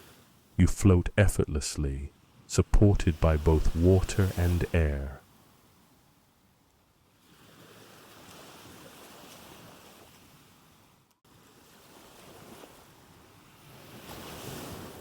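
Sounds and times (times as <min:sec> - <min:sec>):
ocean waves washing in: 0:00.0 - 0:05.9, 0:07.2 - 0:15.0.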